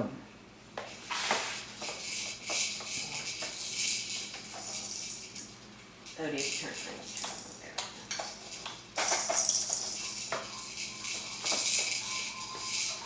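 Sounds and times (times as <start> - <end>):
electronic hiss from toy: 0.8 - 5.5, 8.1 - 13.0
plastic toy parts clattering: 6.1 - 13.0.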